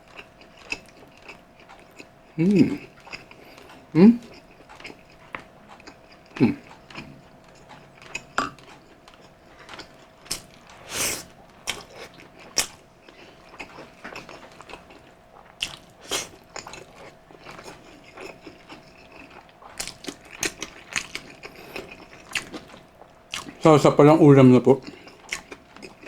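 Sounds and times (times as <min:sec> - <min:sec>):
wet chewing and lip smacks: 0:00.0 - 0:02.1, 0:02.8 - 0:10.9, 0:11.6 - 0:23.6, 0:24.8 - 0:26.0
faint steady hum: 0:00.0 - 0:26.0
slurping: 0:10.8 - 0:11.3.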